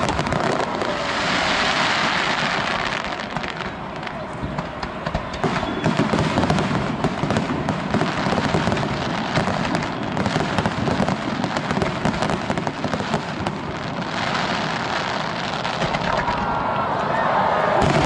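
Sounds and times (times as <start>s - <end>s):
low fireworks booms: 0.0s - 16.9s, 17.7s - 18.0s
fireworks crackling: 0.0s - 17.1s, 17.7s - 18.0s.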